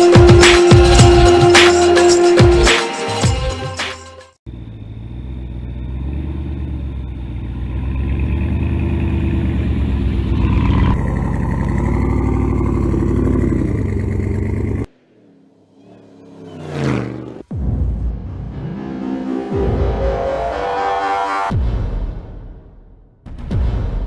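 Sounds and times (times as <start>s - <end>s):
pickup truck engine running hard: 4.5s - 17.3s.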